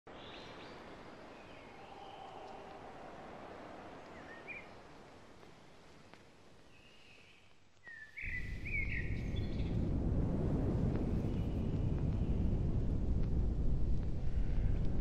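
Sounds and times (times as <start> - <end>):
small birds chirping: 0.1 - 9.8
soft steady hiss: 0.1 - 15.0
low rumble: 8.2 - 15.0.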